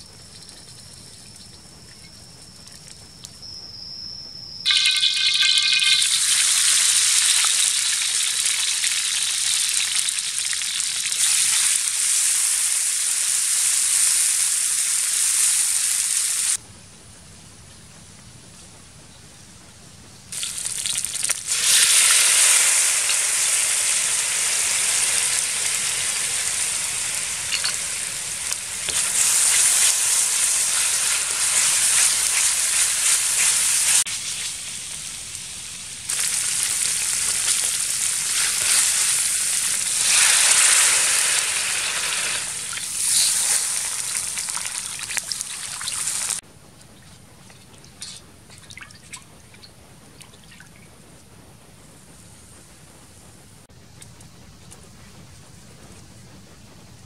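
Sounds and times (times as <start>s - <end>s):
paste sizzling in hot oil: 4.7s - 16.6s, 20.3s - 46.4s
water pouring into wok: 4.7s - 16.6s, 20.4s - 34.6s.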